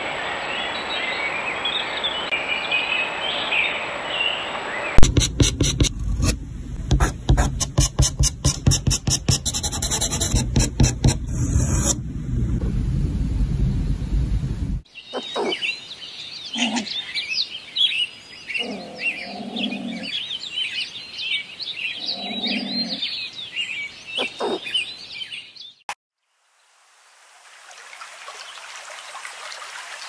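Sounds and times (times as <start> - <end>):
scratching and scraping clicks: 5.0 - 12.0
low rumble: 11.0 - 14.8.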